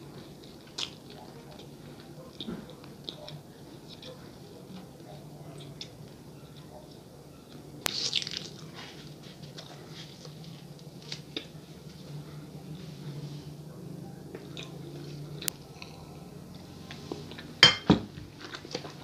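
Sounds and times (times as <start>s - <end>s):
mouth chewing soft bread: 0.0s - 12.8s, 14.3s - 17.5s
faint steady hum: 0.0s - 19.0s.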